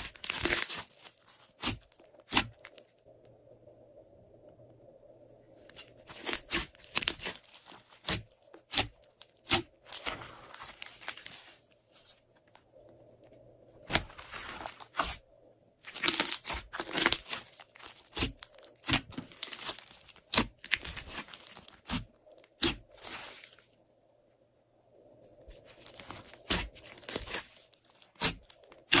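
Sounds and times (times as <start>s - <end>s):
slime crackling and popping: 0.0s - 2.8s, 5.7s - 11.5s, 15.8s - 23.5s, 25.6s - 29.0s.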